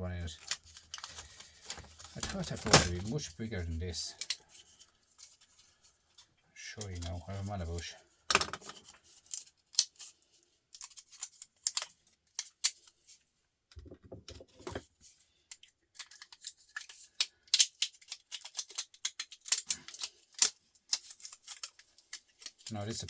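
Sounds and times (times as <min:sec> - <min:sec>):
plastic laptop casing clicks: 0:17.5 - 0:22.7.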